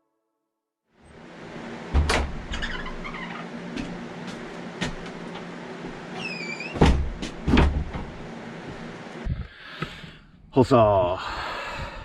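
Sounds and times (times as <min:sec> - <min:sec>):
short squeak: 0:02.5 - 0:03.5, 0:06.2 - 0:06.8
sharp knocks and thumps: 0:06.8 - 0:08.2.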